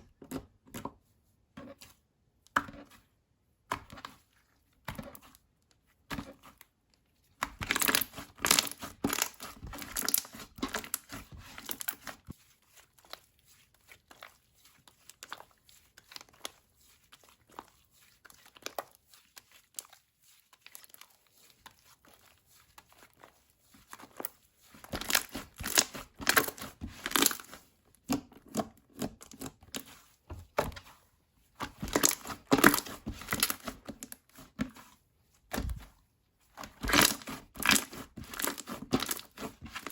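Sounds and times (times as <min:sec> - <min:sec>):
slime crackling and popping: 0:07.5 - 0:12.1, 0:24.9 - 0:27.5, 0:31.8 - 0:33.7, 0:36.7 - 0:39.9.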